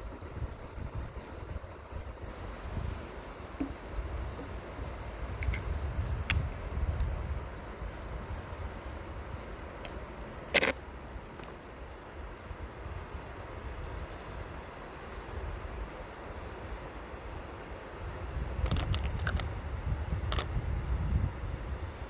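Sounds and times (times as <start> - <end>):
wind rumbling on microphone: 0.0 - 10.8, 18.0 - 22.0.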